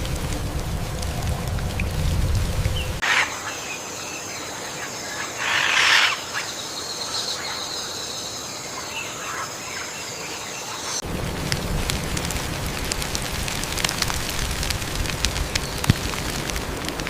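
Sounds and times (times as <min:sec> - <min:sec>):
rain-like hiss: 0:00.0 - 0:17.0
insect buzz: 0:01.7 - 0:11.0
birds squawking: 0:02.7 - 0:11.0.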